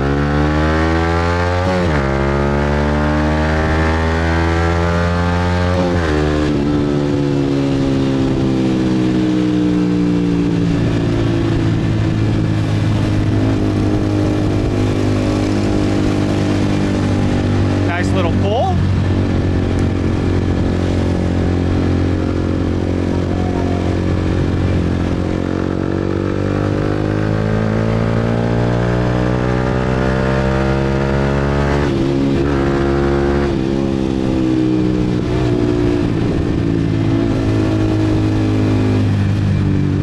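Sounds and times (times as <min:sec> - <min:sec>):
motorbike engine accelerating: 0:00.0 - 0:40.0.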